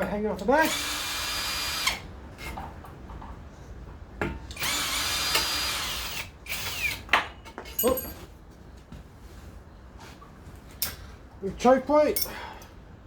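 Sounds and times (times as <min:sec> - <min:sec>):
cordless drill spinning: 0:00.6 - 0:02.0, 0:04.5 - 0:07.0.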